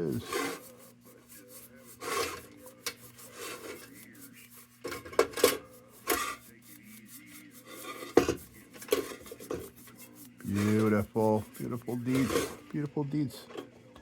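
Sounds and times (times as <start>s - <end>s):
scraping on tin lantern: 0.0s - 13.5s.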